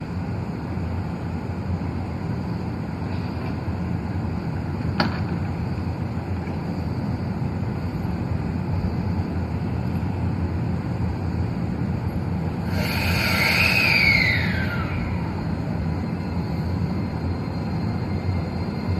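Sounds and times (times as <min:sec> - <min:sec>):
electric train rumble: 0:00.0 - 0:18.9
train motor whine: 0:05.6 - 0:18.9.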